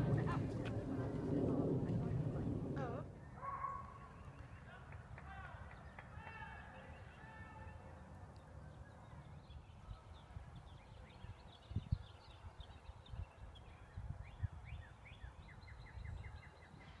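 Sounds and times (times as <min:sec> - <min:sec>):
wind rumble on microphone: 0:00.0 - 0:04.6, 0:09.2 - 0:17.0.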